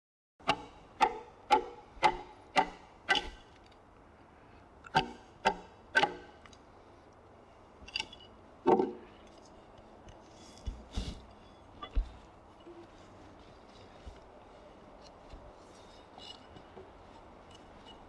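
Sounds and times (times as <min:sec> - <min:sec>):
mallet striking a chisel: 0:00.4 - 0:03.4, 0:04.9 - 0:06.3.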